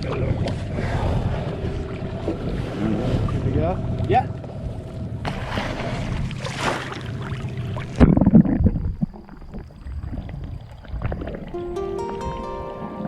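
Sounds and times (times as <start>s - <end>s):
boat noise: 0.0s - 13.0s
wind and water rushing: 0.0s - 13.0s
music: 11.5s - 13.0s.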